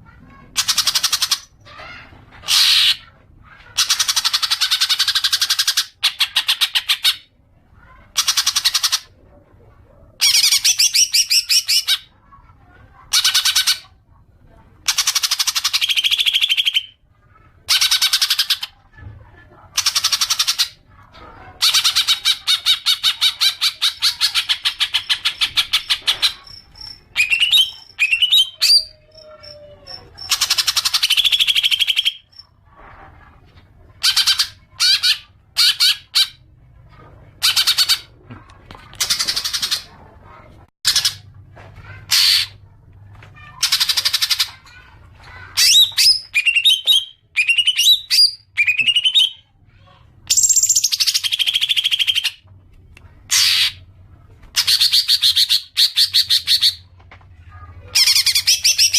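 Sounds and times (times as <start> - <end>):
bird chattering song: 0.6 - 1.6, 10.2 - 12.1, 21.6 - 32.5, 45.5 - 49.5, 50.3 - 52.4, 57.9 - 58.9.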